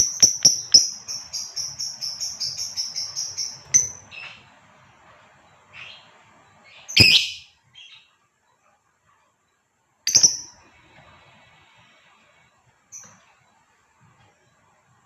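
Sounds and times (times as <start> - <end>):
lovebird shrill calls: 6.9 - 7.5.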